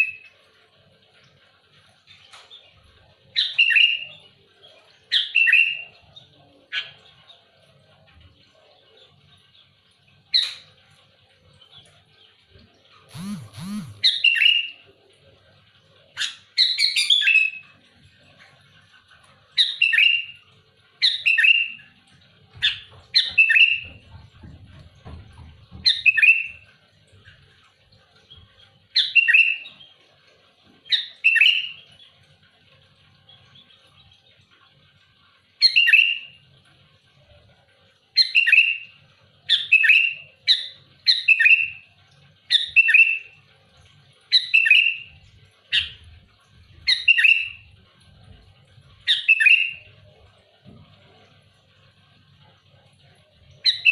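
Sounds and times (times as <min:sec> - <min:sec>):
bulbul chirping: 0:13.1 - 0:14.6.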